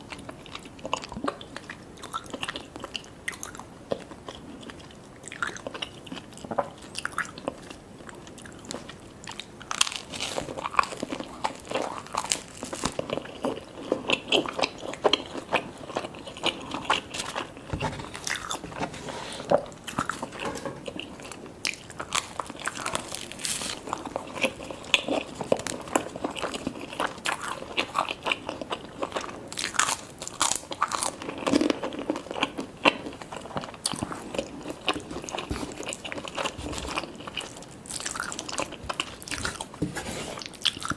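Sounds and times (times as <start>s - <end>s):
crunchy bites and chewing: 4.3s - 40.9s.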